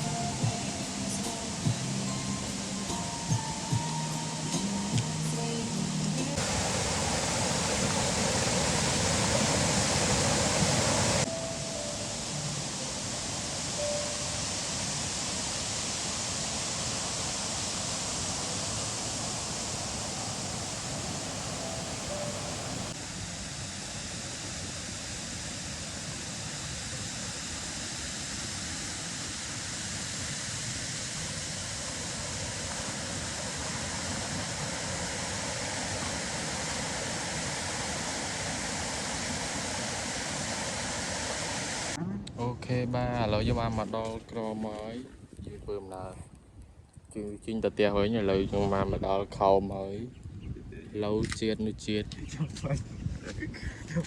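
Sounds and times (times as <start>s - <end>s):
waterfall rushing: 0.0s - 42.0s.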